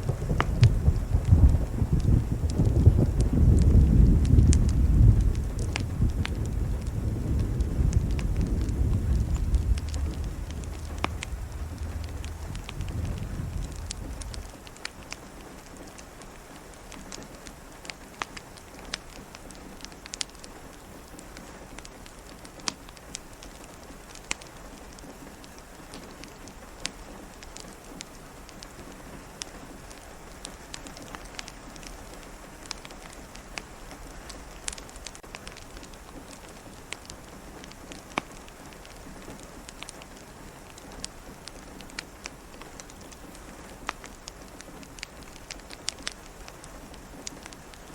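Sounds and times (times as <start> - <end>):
distant thunder rumble: 0.0 - 15.5
rain pattering: 0.0 - 47.9
wood fire crackling: 0.0 - 47.9.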